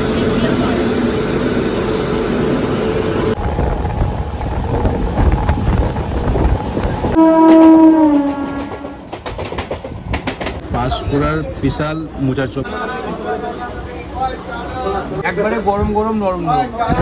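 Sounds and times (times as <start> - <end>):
train rumbling and rattling: 0.0 - 17.0
train horn: 7.1 - 9.1.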